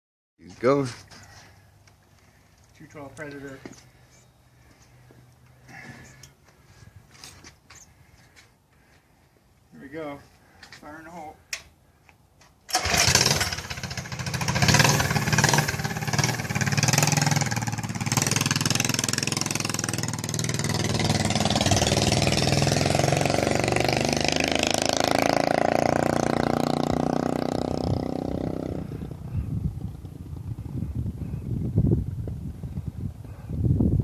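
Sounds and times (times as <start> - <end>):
motorized bike engine running: 12.7 - 25.0, 26.2 - 32.8.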